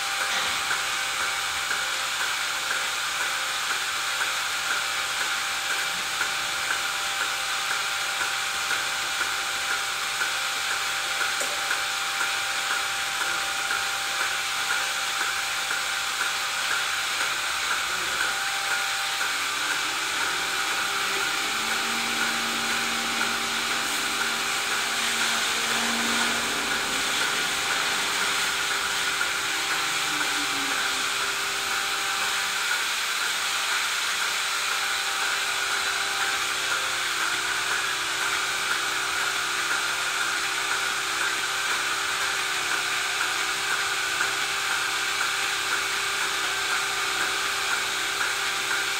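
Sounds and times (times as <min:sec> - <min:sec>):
machinery whirring and hissing: 0:00.0 - 0:48.9
faint pitched tones: 0:18.1 - 0:32.2.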